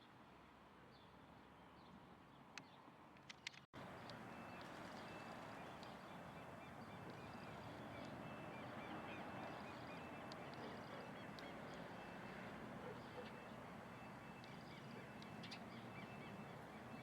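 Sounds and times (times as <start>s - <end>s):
faint bird calls: 4.1s - 17.0s.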